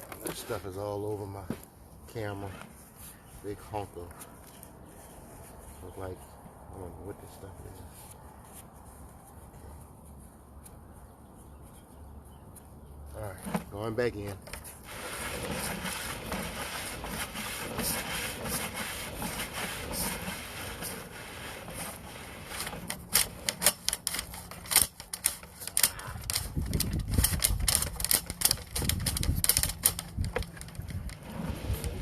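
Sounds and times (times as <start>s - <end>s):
cable clicking and rattling: 21.7s - 32.0s.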